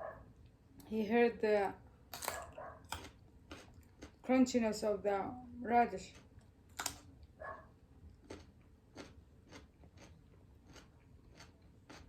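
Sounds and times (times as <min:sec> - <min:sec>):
person chewing crunchy radish: 0:02.1 - 0:04.3, 0:06.0 - 0:07.3, 0:08.0 - 0:12.0.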